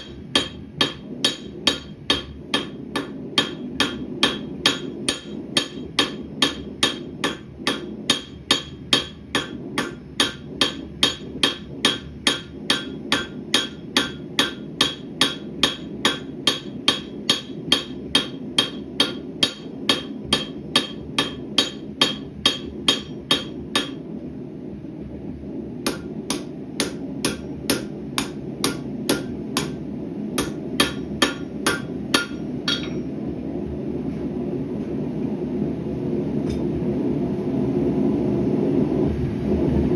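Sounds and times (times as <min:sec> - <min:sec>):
hammer ringing on metal anvil: 0:00.0 - 0:24.0, 0:25.9 - 0:29.8, 0:30.4 - 0:33.2.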